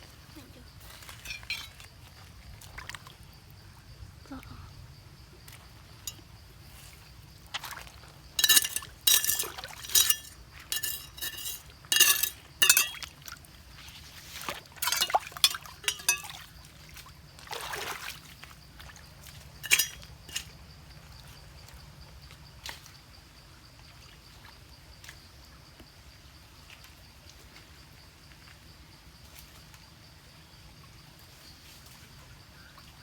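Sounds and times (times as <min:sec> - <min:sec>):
stones clinking together: 0:01.1 - 0:01.8, 0:08.4 - 0:13.1, 0:14.8 - 0:16.4, 0:19.6 - 0:20.5
water splashing and pouring: 0:14.8 - 0:16.4.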